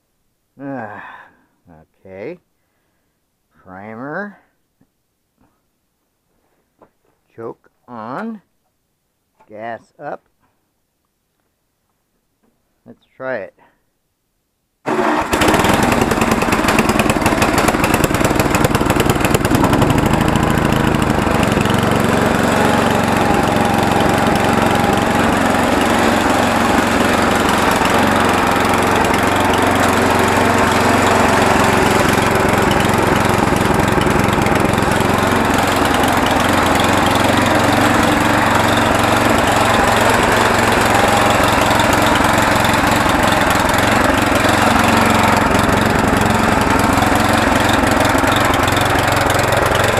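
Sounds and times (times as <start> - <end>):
small gasoline engine running: 14.9 - 49.9.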